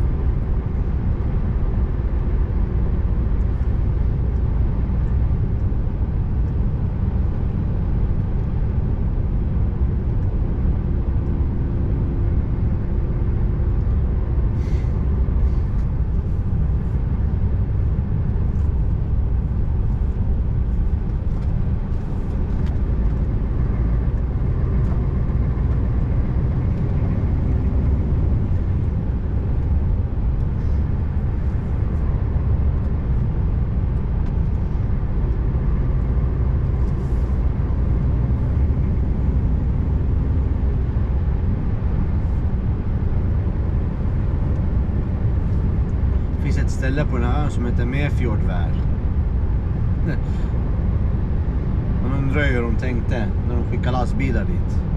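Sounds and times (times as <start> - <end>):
tyre and road noise: 0.0 - 54.9
truck diesel engine running: 10.9 - 47.0.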